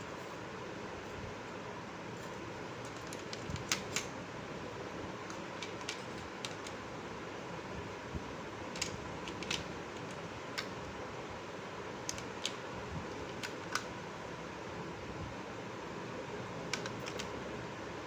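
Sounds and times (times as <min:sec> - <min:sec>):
steady background hiss: 0:00.0 - 0:18.0
plastic toy pieces clicking: 0:08.8 - 0:10.7.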